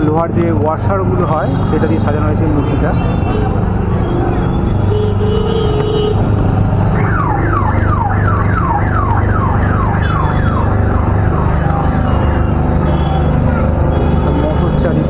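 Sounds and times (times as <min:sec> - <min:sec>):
electronic whooping alarm: 0:06.8 - 0:15.0.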